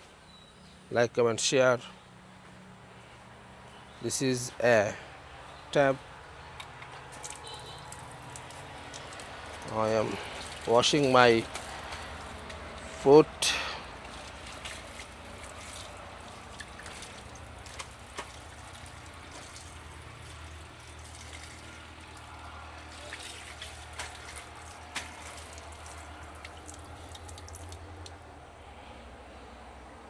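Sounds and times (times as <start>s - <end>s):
sharp water splashes: 7.2s - 28.2s
water running from a tap: 14.2s - 27.8s.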